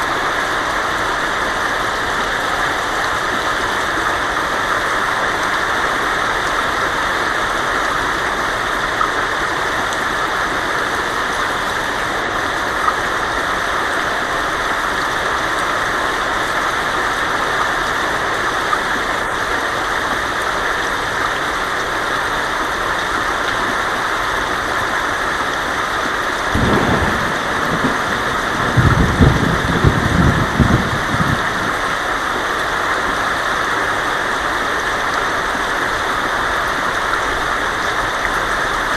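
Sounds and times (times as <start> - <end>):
heavy rain on a tin roof: 0.0 - 38.9
thunder rumbling: 26.5 - 32.2.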